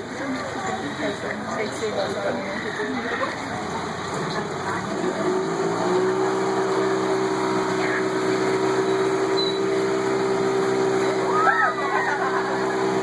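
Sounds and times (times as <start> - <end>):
boat motor humming: 2.8 - 13.0.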